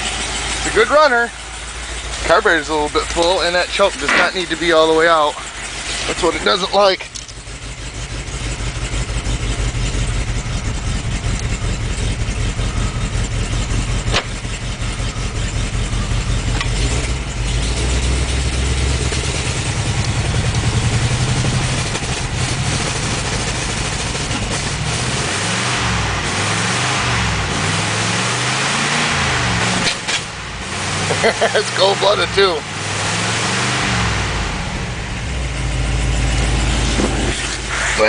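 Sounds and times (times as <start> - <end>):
car engine running: 0.0 - 38.0
sharp click: 29.8 - 30.3.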